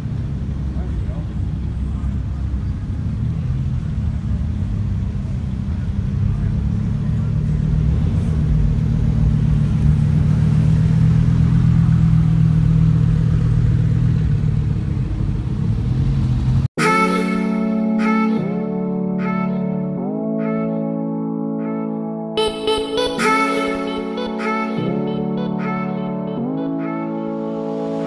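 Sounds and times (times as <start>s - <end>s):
car engine running: 0.0s - 16.7s.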